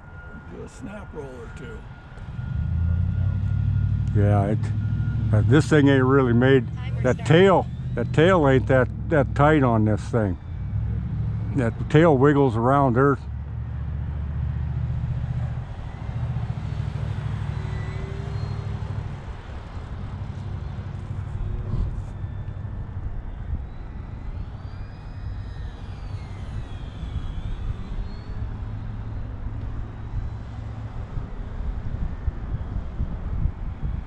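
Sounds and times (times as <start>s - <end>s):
model plane motor whining: 1.9s - 33.0s
wind rumbling on microphone: 13.3s - 34.0s.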